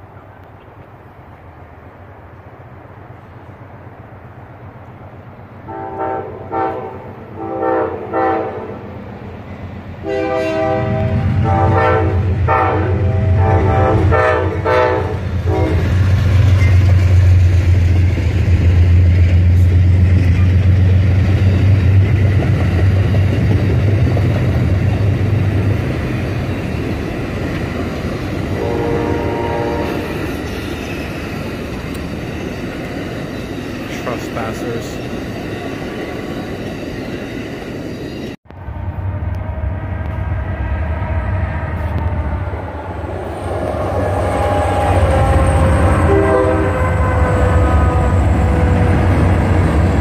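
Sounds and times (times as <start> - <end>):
diesel locomotive rumble: 0.0 - 50.0
train horn blasts: 5.6 - 8.8, 10.0 - 16.1, 28.5 - 30.2, 38.6 - 49.6.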